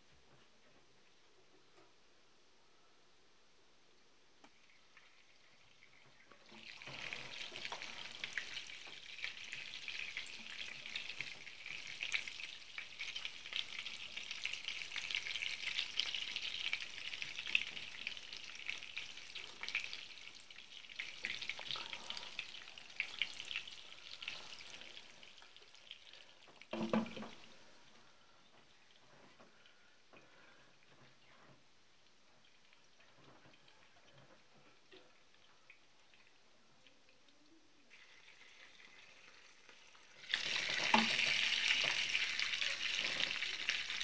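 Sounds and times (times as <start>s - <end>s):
meat sizzling in oil: 4.6s - 27.4s, 37.9s - 44.0s.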